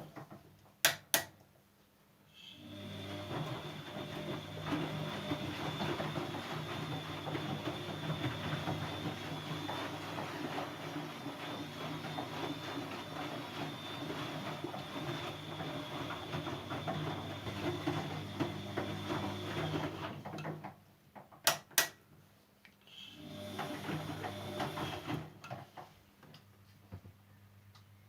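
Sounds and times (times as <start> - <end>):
washing machine motor hum: 2.6 - 20.7, 23.2 - 25.7.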